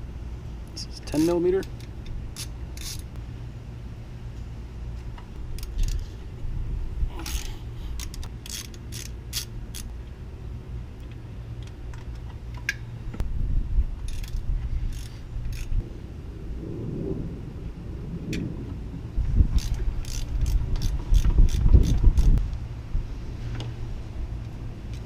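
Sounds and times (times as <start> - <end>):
steady low hum: 0.0 - 25.0
hand ratchet clicking: 1.6 - 3.1, 7.2 - 9.9, 14.1 - 15.8, 19.5 - 22.4.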